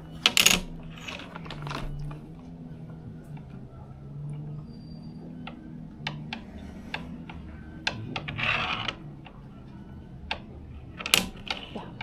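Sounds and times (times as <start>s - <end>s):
domino tiles clicking: 0.1s - 2.2s, 5.4s - 9.4s, 10.2s - 12.0s.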